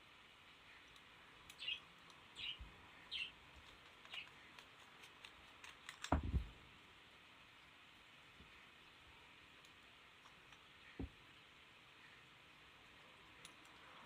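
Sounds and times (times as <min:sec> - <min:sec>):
small bird chirping: 0:00.6 - 0:06.0.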